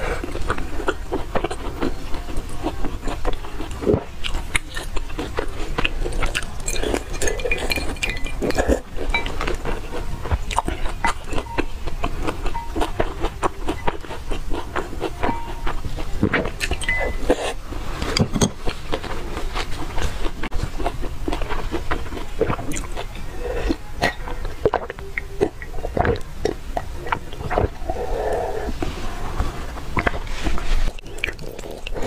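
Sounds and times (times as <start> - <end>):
wet chewing sounds: 0.0 - 32.0
chopsticks clinking on glass bowl: 6.3 - 9.7, 16.6 - 17.4.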